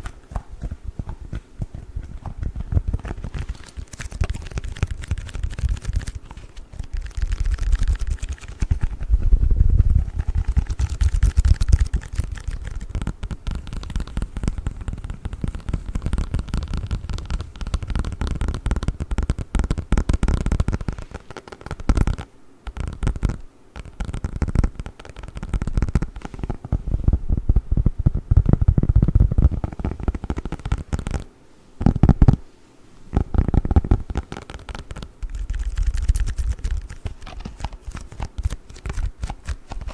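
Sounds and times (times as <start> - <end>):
packaging crackling and rubbing: 0.0 - 26.7, 33.1 - 39.9
deep low rumble: 8.7 - 11.4.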